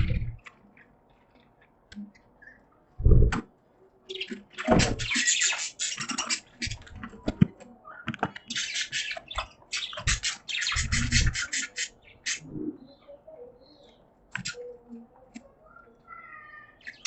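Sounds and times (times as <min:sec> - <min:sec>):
budgies chirping: 0:00.0 - 0:03.4, 0:04.0 - 0:17.0
dull low thumps: 0:03.0 - 0:03.4.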